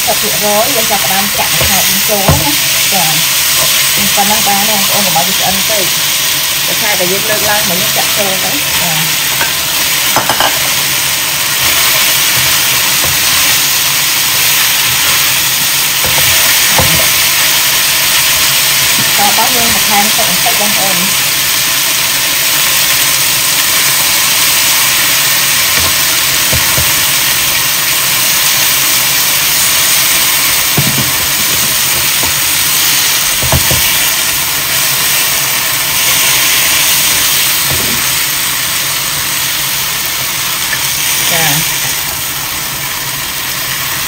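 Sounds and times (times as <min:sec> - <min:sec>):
stir-fry sizzling: 0:00.0 - 0:44.0
spatula knocking against pan: 0:10.2 - 0:10.7, 0:33.4 - 0:33.9.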